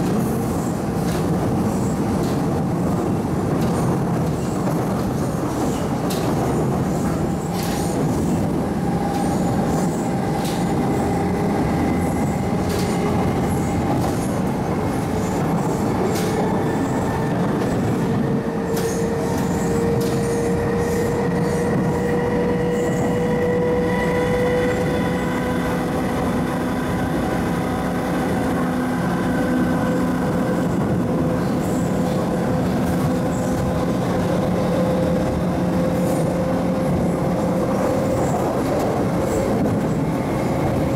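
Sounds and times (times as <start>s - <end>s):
train wheels rumbling on track: 0.0s - 40.9s
rail joint ticks: 2.2s - 2.6s, 3.6s - 8.2s, 9.0s - 11.3s, 11.9s - 16.6s, 18.7s - 21.1s.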